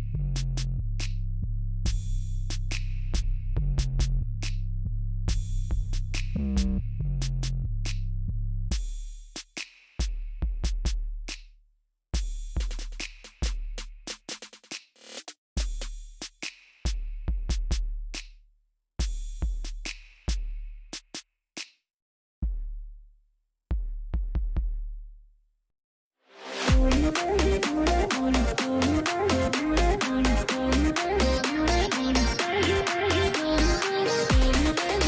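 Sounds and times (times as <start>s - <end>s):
drum machine beat: 1.9s - 4.6s, 5.3s - 8.0s, 8.7s - 11.5s, 12.2s - 18.4s, 19.0s - 21.2s, 22.4s - 23.0s, 23.7s - 25.2s, 26.7s - 35.0s.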